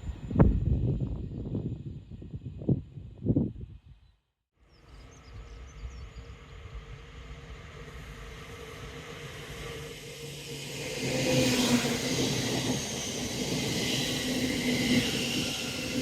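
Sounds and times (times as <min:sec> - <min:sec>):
train rumble and rail hiss: 0:04.7 - 0:16.0.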